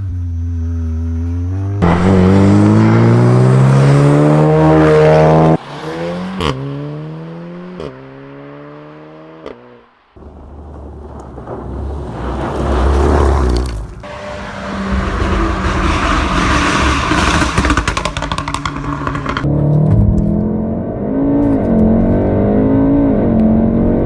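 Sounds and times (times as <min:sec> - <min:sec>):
car engine accelerating: 0:00.0 - 0:24.0
sharp exhaust cracks: 0:10.2 - 0:19.5.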